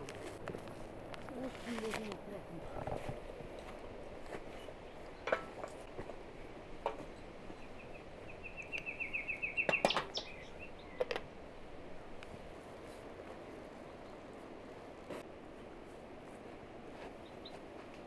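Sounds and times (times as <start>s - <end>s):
outdoor ambience: 0.0s - 18.0s
small bird trilling: 8.4s - 11.0s.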